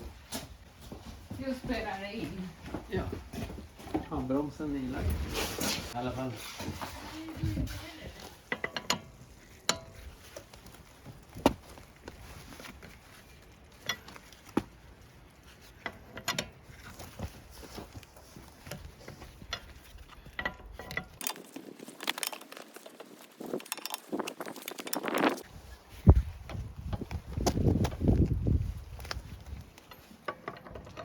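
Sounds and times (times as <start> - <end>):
hand tools clicking and knocking: 8.2 - 12.9, 15.6 - 25.5, 29.2 - 31.0.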